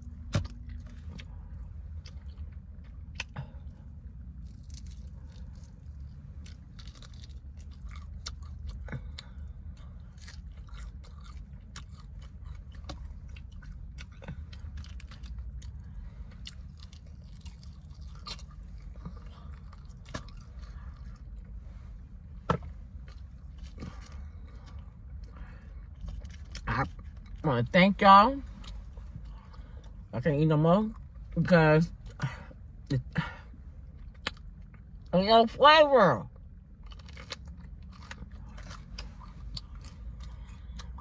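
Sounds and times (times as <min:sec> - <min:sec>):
steady low rumble: 0:00.0 - 0:41.0
chewing fried chicken: 0:00.1 - 0:21.6, 0:23.0 - 0:27.4, 0:36.7 - 0:41.0.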